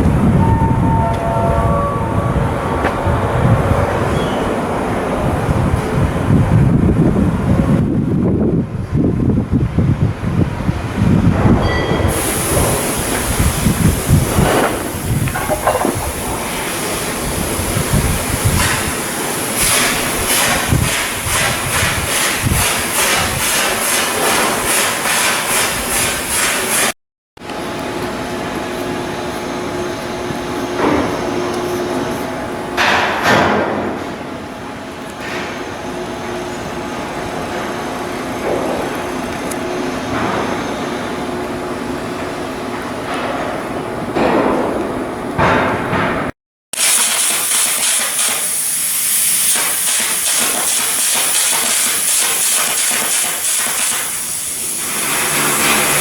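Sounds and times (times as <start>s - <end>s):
heavy industrial rumble: 0.0s - 19.1s
machinery noise with faint hum: 0.0s - 56.0s
knocks and clanks: 11.3s - 16.7s
short hissing bursts: 12.1s - 26.9s, 46.8s - 56.0s.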